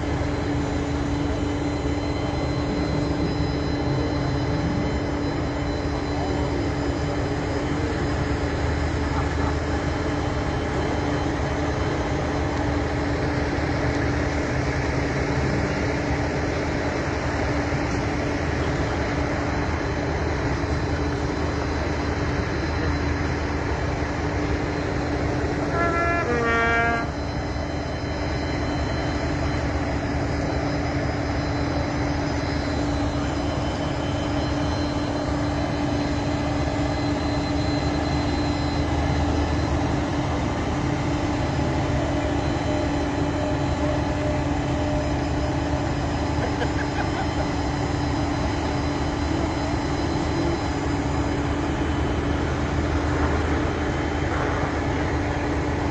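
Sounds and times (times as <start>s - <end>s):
vehicle engine hum: 0.0s - 55.9s
brief two-step tone: 25.4s - 29.8s.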